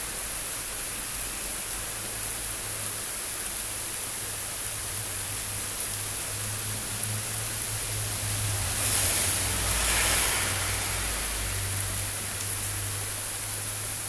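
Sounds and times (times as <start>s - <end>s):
heavy rain hissing: 0.0s - 14.0s
rushing swell with low rumble: 7.5s - 12.2s.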